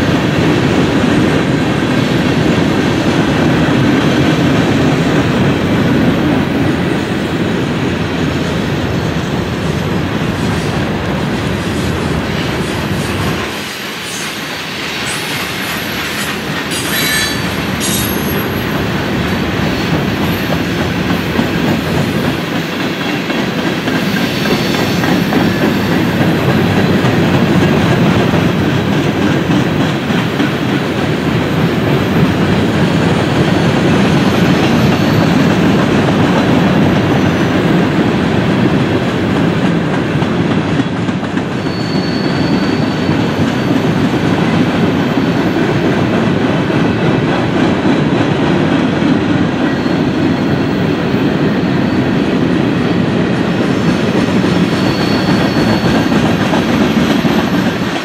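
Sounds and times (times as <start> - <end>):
train wheels rumbling on rails: 0.0 - 58.0
wheel squeal: 41.5 - 43.8, 54.5 - 56.7.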